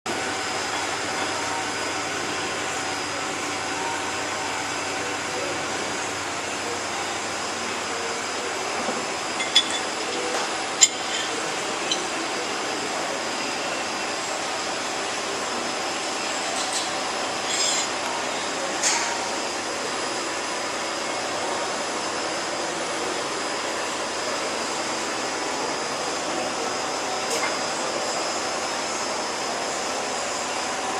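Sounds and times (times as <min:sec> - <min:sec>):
knife blade grinding on wheel: 0:09.4 - 0:12.2.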